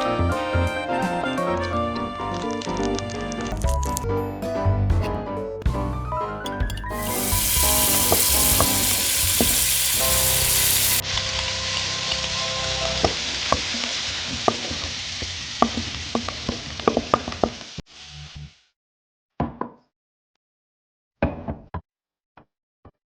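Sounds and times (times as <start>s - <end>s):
food sizzling in hot oil: 6.5s - 18.1s.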